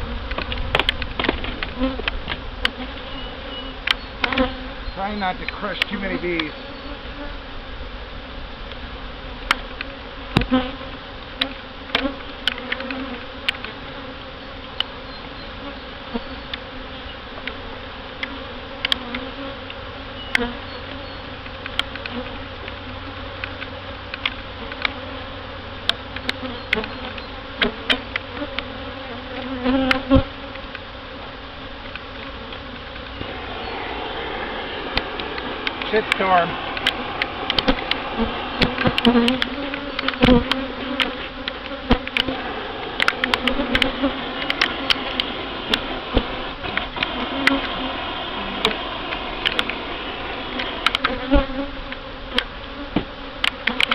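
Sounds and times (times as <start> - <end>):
bees buzzing: 0.0 - 53.9
sharp ticks and knocks: 3.8 - 4.5, 31.8 - 47.8, 48.6 - 49.8, 50.5 - 53.9.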